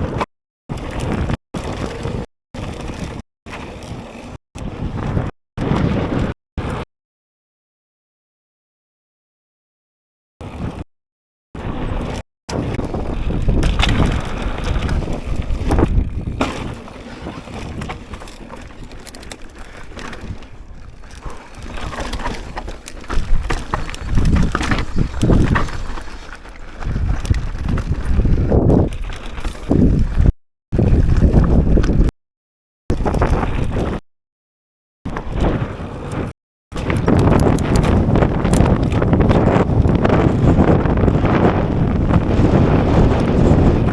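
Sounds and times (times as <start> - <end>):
mountain bike rattling on dirt: 0.0 - 6.8, 10.4 - 10.8, 11.6 - 32.1, 32.9 - 34.0, 35.1 - 43.9
wind buffeting microphone: 11.6 - 19.1, 19.8 - 32.1, 35.1 - 43.9.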